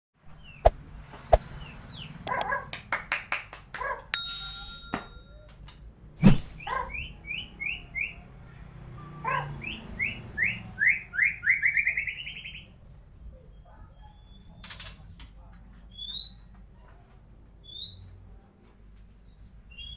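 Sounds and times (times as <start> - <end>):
bird singing agitated song: 0.3 - 0.8, 9.6 - 12.7, 19.2 - 19.9.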